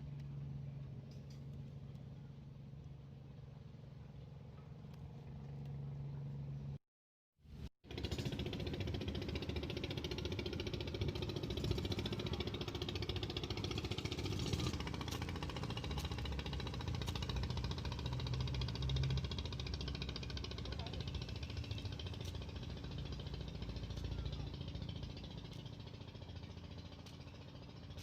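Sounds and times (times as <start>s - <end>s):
small engine running: 7.5s - 28.0s.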